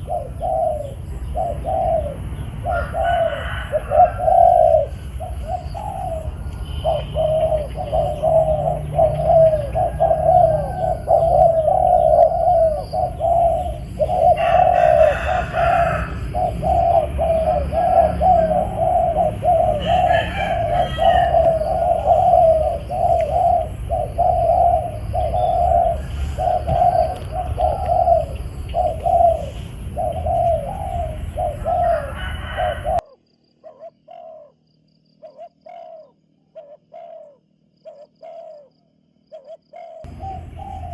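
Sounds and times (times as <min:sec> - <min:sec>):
doves cooing: 0:00.0 - 0:40.9
steady low rumble: 0:04.8 - 0:32.1, 0:40.0 - 0:40.9.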